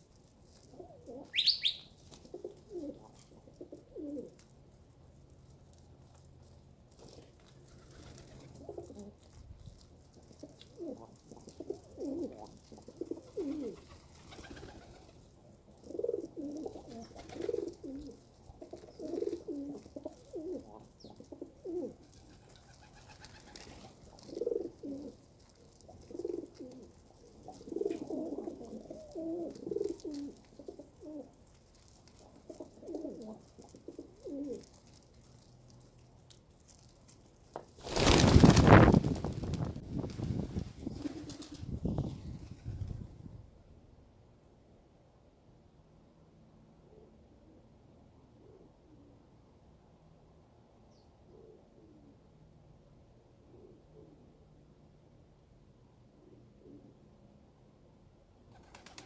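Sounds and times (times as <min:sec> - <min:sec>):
pigeons cooing: 0:00.7 - 0:04.4, 0:07.9 - 0:09.2, 0:10.4 - 0:15.2, 0:15.8 - 0:31.4, 0:32.2 - 0:34.8
short high chirp: 0:01.4 - 0:01.9.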